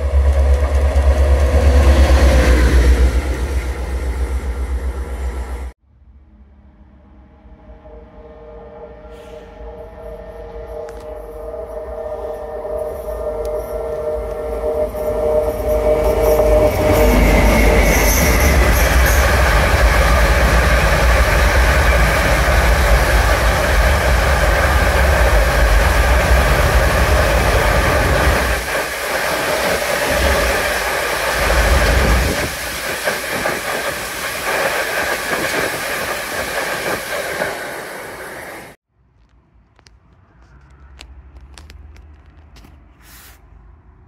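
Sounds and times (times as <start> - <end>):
train wheels rumbling on rails: 0.0 - 5.8, 12.2 - 38.8.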